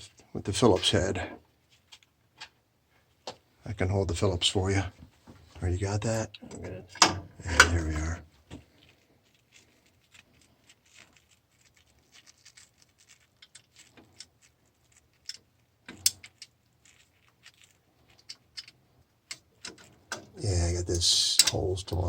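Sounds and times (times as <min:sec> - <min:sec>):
sheet metal parts clicking: 0:18.1 - 0:20.3.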